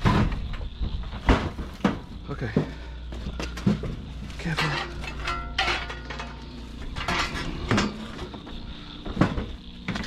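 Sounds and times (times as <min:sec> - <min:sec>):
metal objects clanking: 0:03.4 - 0:08.6.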